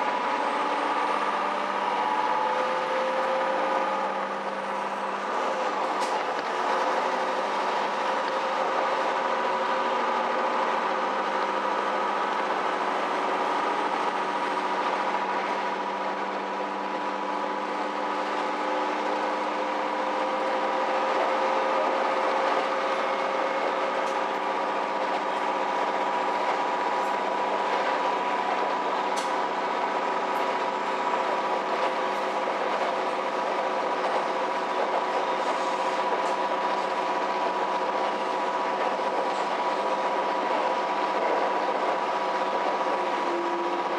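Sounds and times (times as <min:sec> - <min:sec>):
rail and wheel noise: 0:00.0 - 0:43.9
railcar engine and transmission drone: 0:00.0 - 0:43.9.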